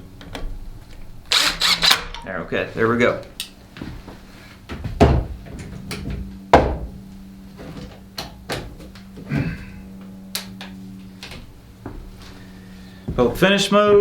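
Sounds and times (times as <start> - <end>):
power tool thumps: 6.5 - 7.0.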